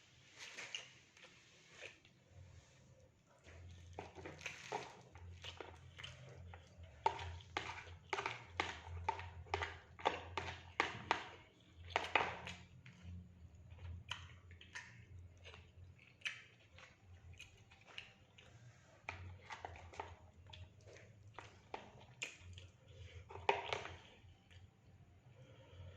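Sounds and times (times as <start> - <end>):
chewing and crunching food: 0.0 - 25.9
low steady hum: 11.4 - 25.9.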